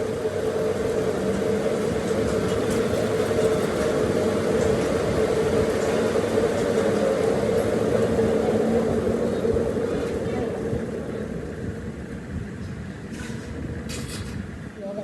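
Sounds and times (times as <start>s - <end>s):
machine mechanical hum: 0.0s - 6.0s.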